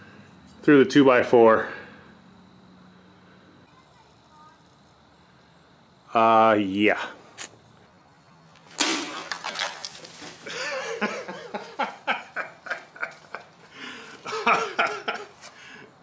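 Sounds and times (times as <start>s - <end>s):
man laughing: 10.4s - 15.4s.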